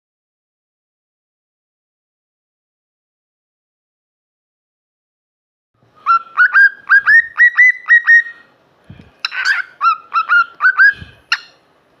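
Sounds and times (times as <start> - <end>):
cockatiel chirping whistles: 6.0 - 8.4, 9.3 - 11.5.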